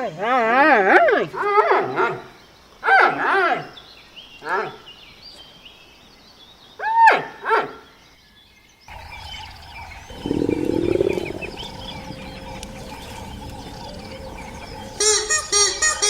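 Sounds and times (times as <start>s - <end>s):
birds chirping: 8.3s - 16.0s
low rough animal call: 8.9s - 15.8s
loud pitched animal calls: 8.9s - 16.0s.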